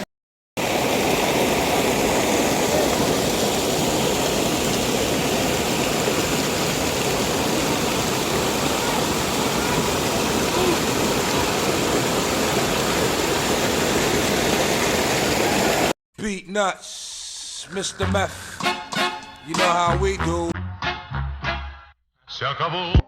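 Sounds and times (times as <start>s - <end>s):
rush of flowing water: 0.6s - 16.0s.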